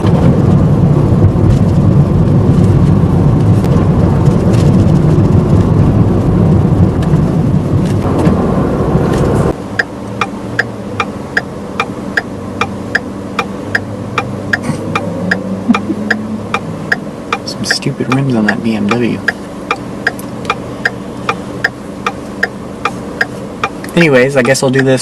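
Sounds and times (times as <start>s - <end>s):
engine humming quietly: 0.0s - 25.0s
road and engine rumble: 0.0s - 25.0s
turn signal relay ticking: 9.5s - 25.0s.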